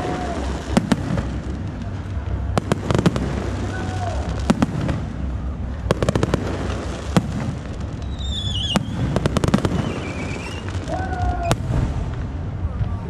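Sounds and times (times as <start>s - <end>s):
fireworks bursting: 0.0s - 13.0s
high wavering whistle: 8.0s - 9.0s.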